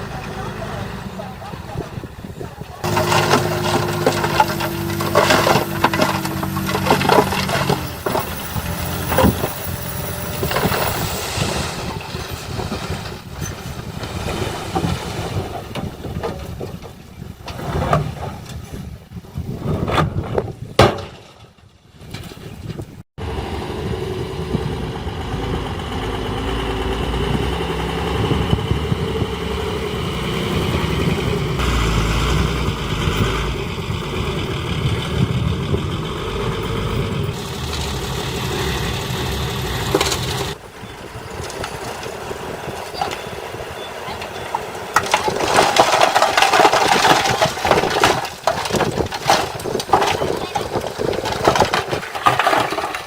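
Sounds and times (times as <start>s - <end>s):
heavy machinery diesel engines: 0.0s - 19.0s, 22.4s - 53.0s
metal clanks and knocks: 2.8s - 11.2s.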